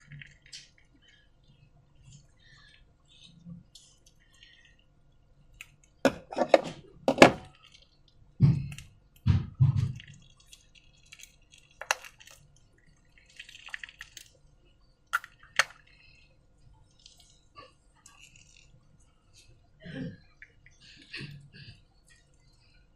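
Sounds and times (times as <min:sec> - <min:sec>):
slime squelching and clicking: 0:07.5 - 0:14.4, 0:15.1 - 0:16.2.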